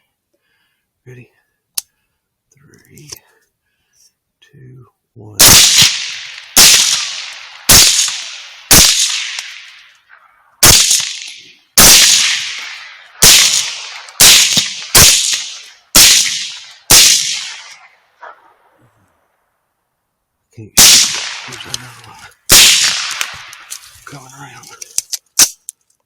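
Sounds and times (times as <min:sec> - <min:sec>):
rifle shots with echo: 0:05.4 - 0:18.6, 0:20.8 - 0:23.7.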